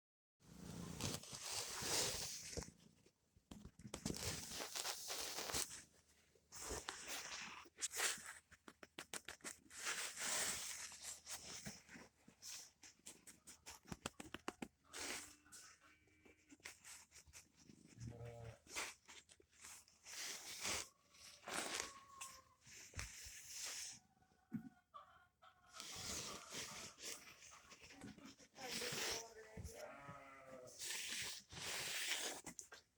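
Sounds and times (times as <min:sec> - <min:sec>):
hand rustling kitten fur: 0:00.6 - 0:18.0, 0:18.6 - 0:24.0, 0:25.8 - 0:30.0, 0:30.7 - 0:32.9.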